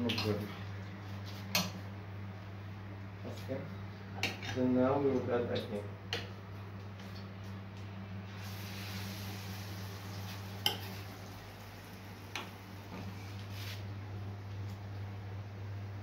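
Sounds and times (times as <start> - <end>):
food sizzling in oil: 8.3 - 12.7.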